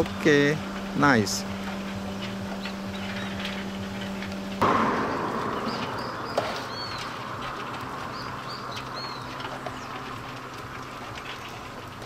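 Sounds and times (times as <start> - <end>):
bird chirps: 5.0 - 7.2, 8.0 - 10.0.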